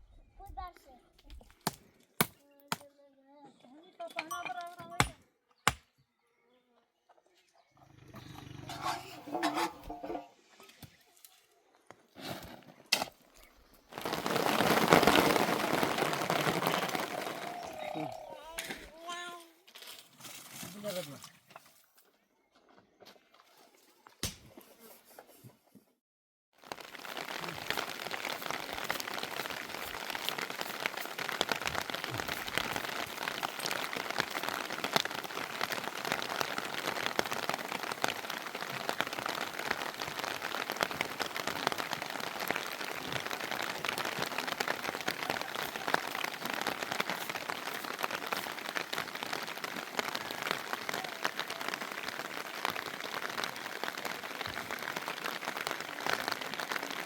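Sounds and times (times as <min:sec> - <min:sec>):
steady rain falling: 0:13.7 - 0:19.4, 0:26.6 - 0:57.0.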